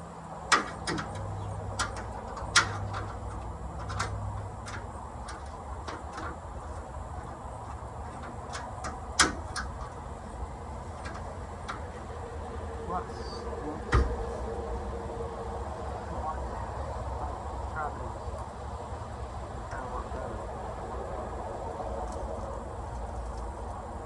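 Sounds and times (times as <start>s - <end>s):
hand tools clicking and knocking: 0.5s - 10.1s, 10.9s - 12.0s.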